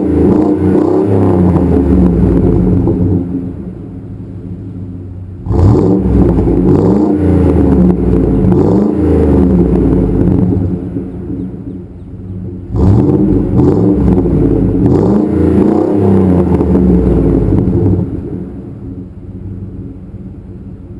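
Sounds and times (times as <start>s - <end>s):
engine rev blips: 0.0s - 20.2s
engine idling: 0.0s - 20.9s.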